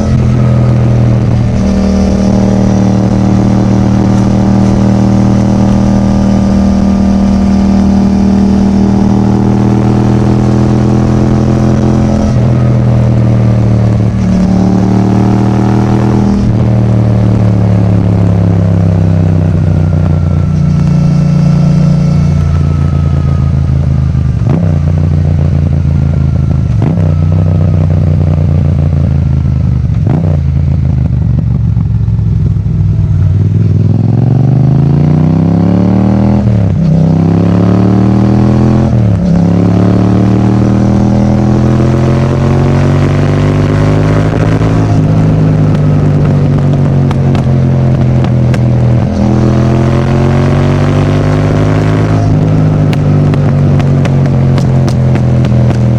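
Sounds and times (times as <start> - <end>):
gear upshifts: 0.0 - 24.8
motorcycle engine accelerating: 0.0 - 55.9.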